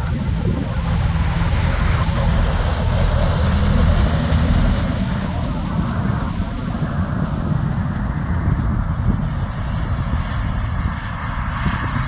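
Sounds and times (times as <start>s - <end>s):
truck diesel engine rumble: 0.0s - 9.5s
tyre and road noise: 0.0s - 12.0s.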